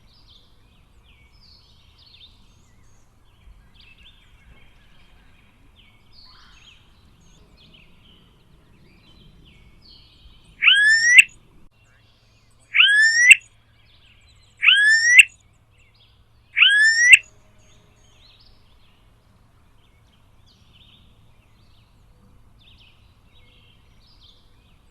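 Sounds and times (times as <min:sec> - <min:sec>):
bird giving rising calls: 0:10.6 - 0:11.3, 0:12.7 - 0:13.4, 0:14.6 - 0:15.3, 0:16.6 - 0:17.2
faint bird chirps: 0:10.6 - 0:15.4, 0:16.6 - 0:17.8.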